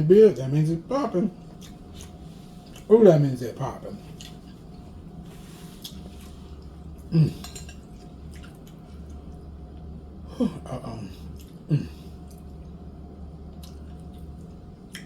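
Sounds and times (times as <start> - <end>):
steady low hum: 0.0 - 15.0
person chewing food: 1.4 - 2.9, 4.0 - 9.9, 11.1 - 12.8, 13.5 - 15.0
person humming mm: 7.1 - 7.5, 10.3 - 12.0.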